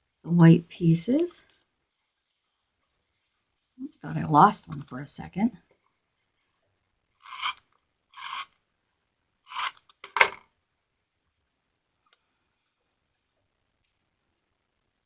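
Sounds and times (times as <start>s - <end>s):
adhesive tape runner strokes: 7.2s - 8.6s, 9.5s - 10.0s.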